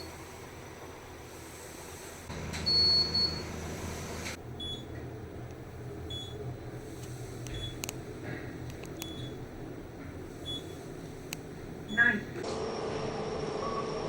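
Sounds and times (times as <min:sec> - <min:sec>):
low cabin hum: 0:00.0 - 0:12.4
elevator beeps: 0:02.6 - 0:03.5, 0:04.6 - 0:05.0, 0:06.1 - 0:06.4, 0:07.5 - 0:07.8, 0:09.0 - 0:09.4, 0:10.4 - 0:10.8, 0:11.9 - 0:12.2.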